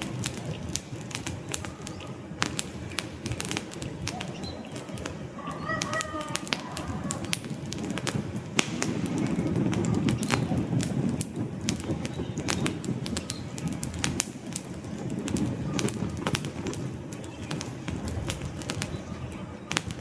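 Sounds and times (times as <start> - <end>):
rush of burning flames: 0.0 - 20.0
wood fire popping: 0.0 - 20.0.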